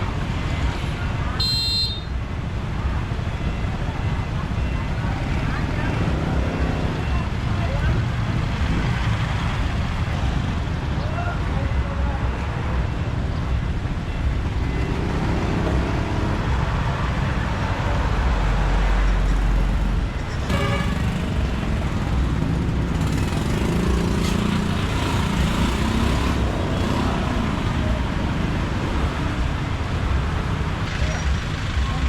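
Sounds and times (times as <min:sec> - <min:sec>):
motorbike engine and road rumble: 0:00.0 - 0:32.0
vehicles passing: 0:00.0 - 0:32.0.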